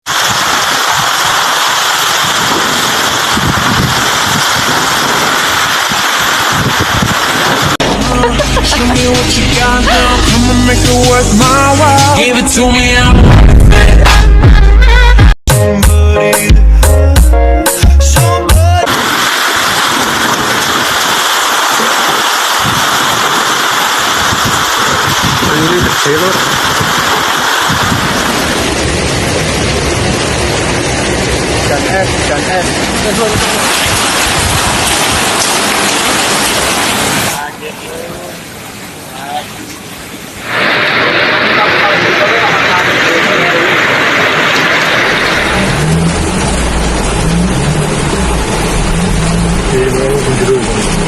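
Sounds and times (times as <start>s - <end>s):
heavy rain pouring: 0.0s - 15.3s, 17.7s - 51.0s
wind buffeting microphone: 0.1s - 8.0s, 18.9s - 37.3s.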